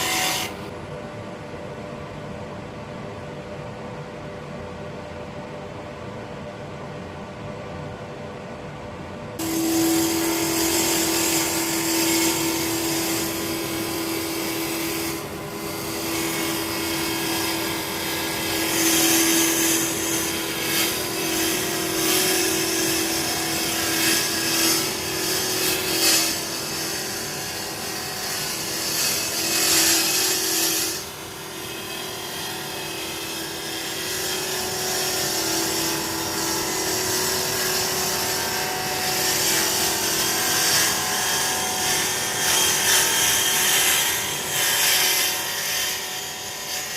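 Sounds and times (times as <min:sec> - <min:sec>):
wood lathe humming: 0:00.0 - 0:00.7, 0:09.4 - 0:46.9
dust extractor drone: 0:00.0 - 0:00.8, 0:09.4 - 0:46.9
gouge scraping wood: 0:09.4 - 0:45.3.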